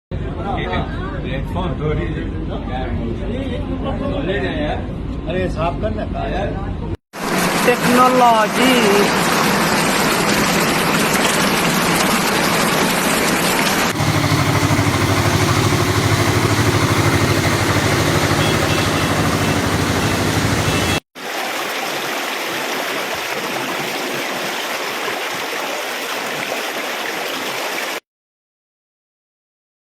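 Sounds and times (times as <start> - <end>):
running water: 7.2 - 28.0
vehicle engine running low: 13.8 - 21.0.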